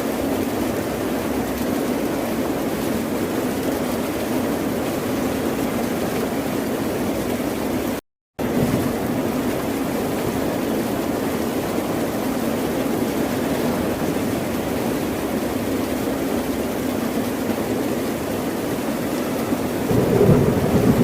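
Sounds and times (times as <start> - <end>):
ocean surf roaring: 18.2 - 21.0.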